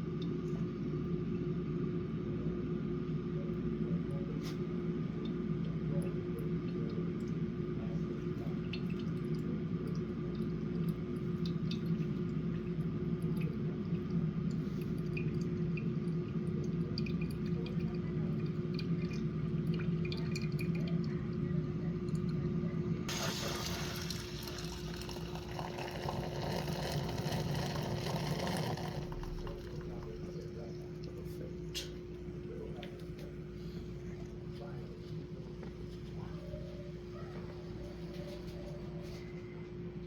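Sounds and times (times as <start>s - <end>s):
coffee machine pump hum: 0.0s - 40.0s
liquid pouring: 8.2s - 22.4s, 23.1s - 31.7s.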